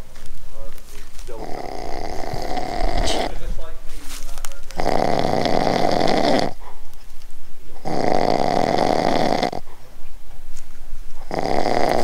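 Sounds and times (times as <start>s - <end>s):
loud harsh snoring: 1.4s - 3.4s, 4.8s - 6.6s, 7.8s - 9.7s, 11.2s - 12.0s.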